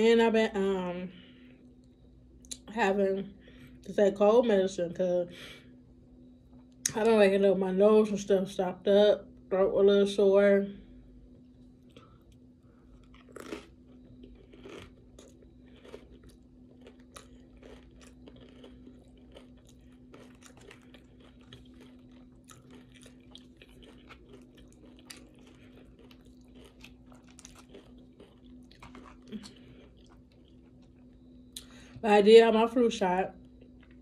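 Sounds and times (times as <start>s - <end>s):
faint steady hum: 0.0s - 34.0s
chewing crunchy food: 11.3s - 32.0s, 33.3s - 34.0s.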